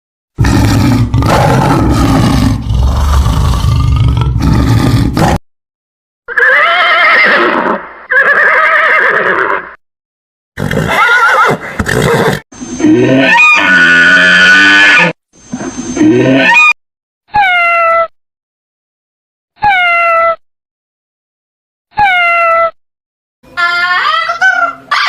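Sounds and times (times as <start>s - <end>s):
horse whinnying: 6.3s - 9.8s, 10.6s - 12.4s.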